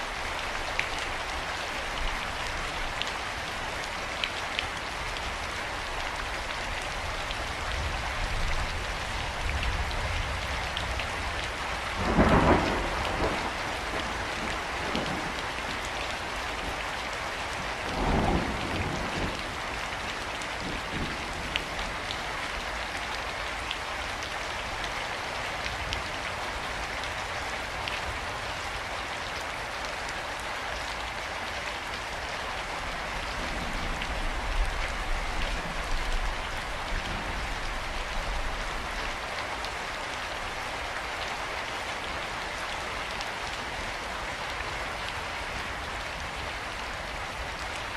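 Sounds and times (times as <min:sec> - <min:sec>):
rain pattering on surfaces: 0:00.0 - 0:47.9
thunder rumbles: 0:08.2 - 0:22.2, 0:33.2 - 0:38.8.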